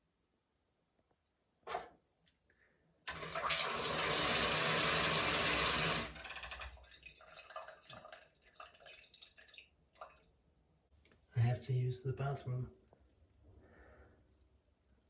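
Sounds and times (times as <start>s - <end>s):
water dripping and splashing: 6.6s - 10.4s.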